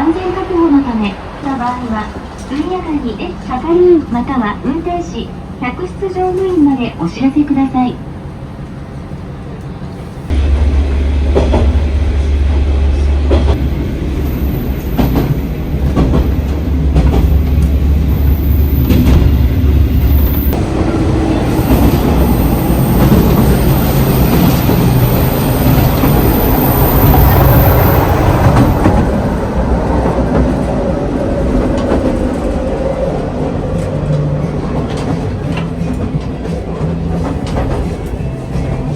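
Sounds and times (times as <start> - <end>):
train rumble: 0.0 - 38.9
train wheels clacking on rails: 10.3 - 38.9.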